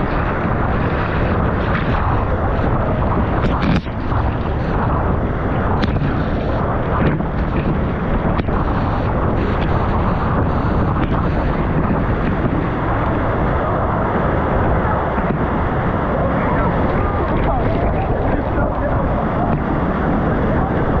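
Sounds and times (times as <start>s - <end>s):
waterfall roaring: 8.4s - 19.6s.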